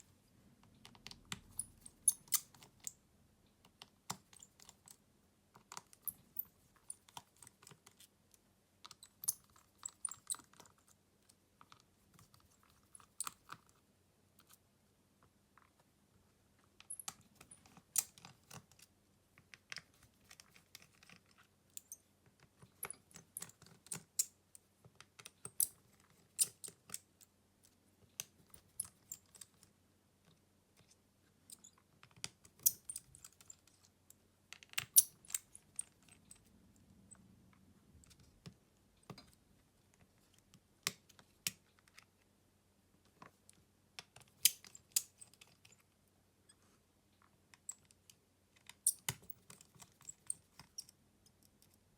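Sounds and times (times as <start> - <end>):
small tools clicking on phone parts: 0.8 - 3.0.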